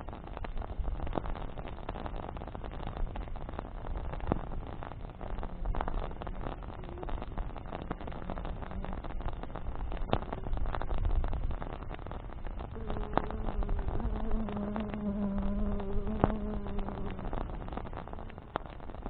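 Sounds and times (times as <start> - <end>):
campfire crackling and popping: 0.0 - 19.0
flying insect buzzing: 12.8 - 18.5.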